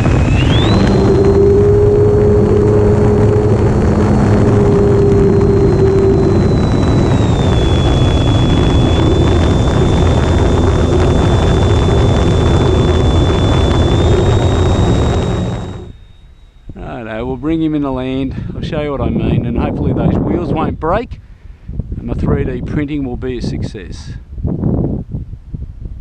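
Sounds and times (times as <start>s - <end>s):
electric motor whine: 0.0s - 16.7s
wind noise on microphone: 0.0s - 26.0s.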